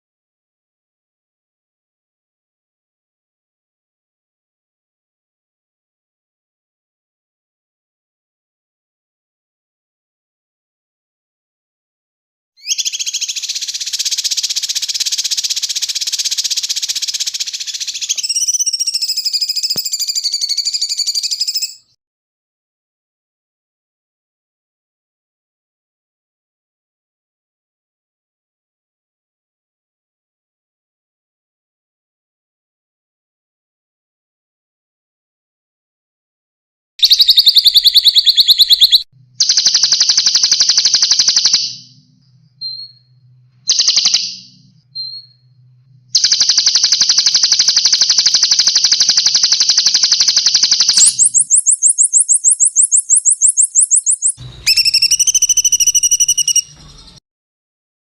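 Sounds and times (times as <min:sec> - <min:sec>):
thin whistled bird notes: 0:12.6 - 0:22.0, 0:37.0 - 0:45.6, 0:46.2 - 0:57.2
songbird buzzing trill: 0:46.8 - 0:57.2
bird pulsing rasping call: 0:50.9 - 0:56.8.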